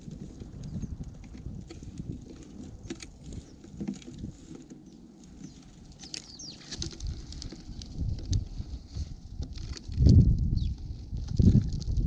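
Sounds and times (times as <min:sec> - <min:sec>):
birds pecking at feeder: 0:00.0 - 0:12.0
high bird chirps: 0:05.5 - 0:06.7.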